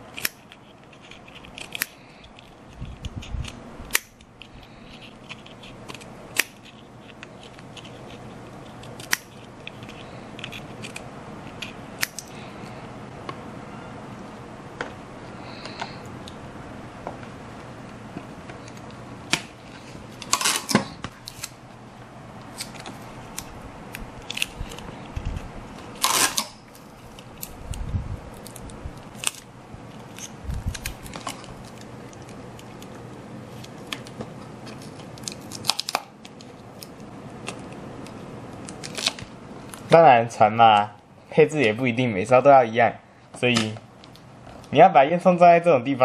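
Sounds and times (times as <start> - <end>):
faint hum: 0.0 - 46.0
scissors snipping: 0.1 - 12.4.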